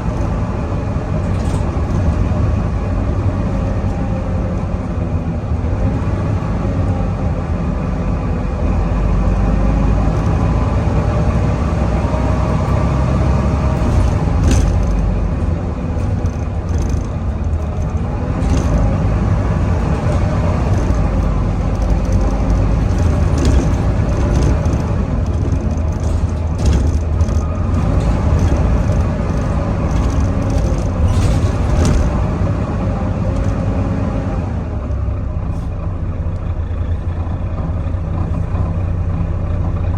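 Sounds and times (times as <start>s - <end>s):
sharp clicks and rattles: 0.0s - 4.7s, 10.0s - 11.4s, 12.3s - 33.7s
bus diesel engine under load: 0.0s - 39.9s.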